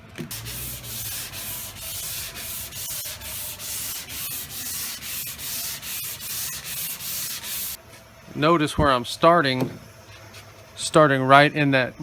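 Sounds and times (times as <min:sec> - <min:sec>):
sandpaper rasping on metal: 0:00.3 - 0:07.8.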